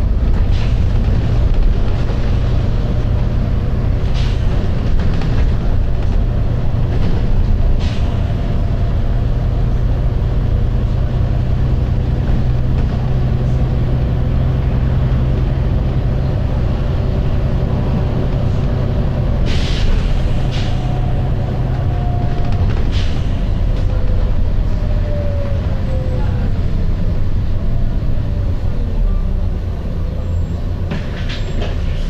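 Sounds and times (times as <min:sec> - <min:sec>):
bus engine drone: 0:00.0 - 0:32.0
compressed air hiss: 0:19.5 - 0:20.8.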